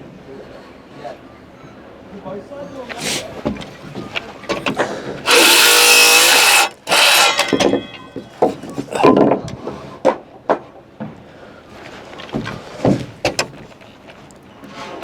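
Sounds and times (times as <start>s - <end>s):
power saw cutting timber: 4.6s - 8.0s
knocks of wood on wood: 12.3s - 13.7s.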